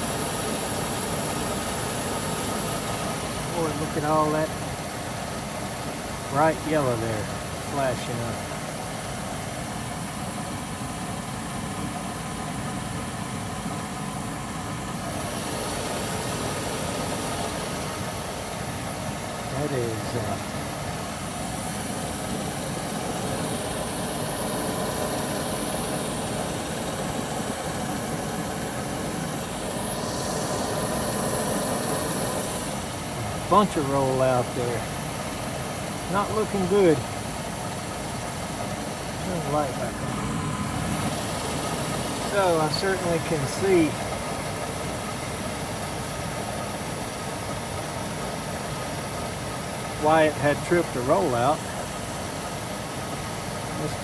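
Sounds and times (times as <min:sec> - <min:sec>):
furnace fans: 0:00.0 - 0:54.0
gas flames rumbling and hissing: 0:00.0 - 0:54.0.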